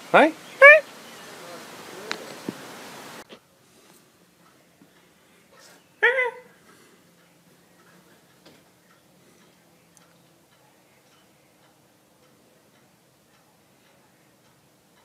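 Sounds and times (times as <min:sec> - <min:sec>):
faint clicks: 0:06.7 - 0:15.0.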